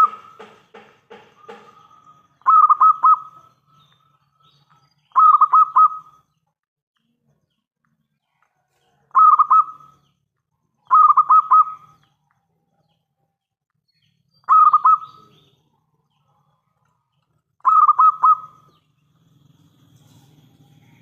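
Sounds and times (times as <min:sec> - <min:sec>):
dove cooing: 0:01.4 - 0:03.5, 0:05.1 - 0:06.1, 0:09.0 - 0:09.9, 0:10.8 - 0:12.0, 0:14.5 - 0:15.4, 0:17.6 - 0:18.8.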